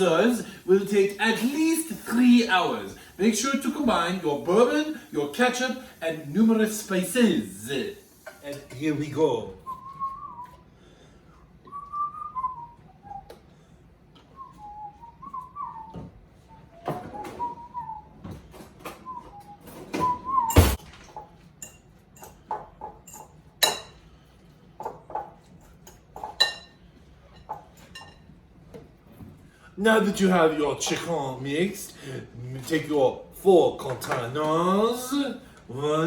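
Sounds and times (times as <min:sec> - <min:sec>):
person whistling a tune: 0:09.6 - 0:10.7, 0:11.6 - 0:13.4, 0:14.3 - 0:18.2, 0:19.0 - 0:20.8
loud knock: 0:20.5 - 0:20.9
utensils clinking against bowl: 0:21.6 - 0:24.0, 0:24.8 - 0:28.4.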